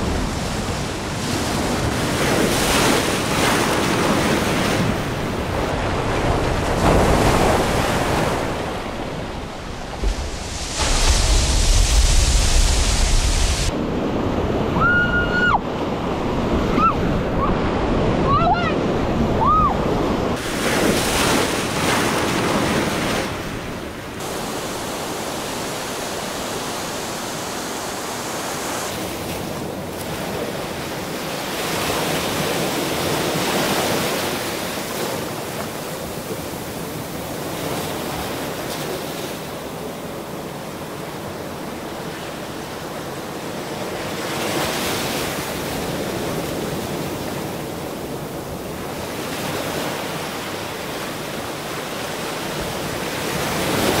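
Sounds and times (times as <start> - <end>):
wind buffeting microphone: 0.0 - 21.3
river water rushing and splashing: 0.0 - 54.0.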